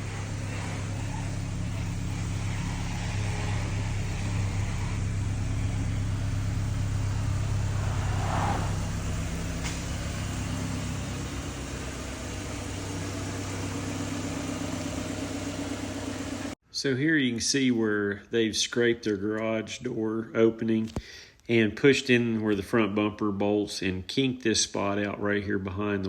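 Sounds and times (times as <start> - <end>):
vehicle engine idling: 0.0 - 16.6.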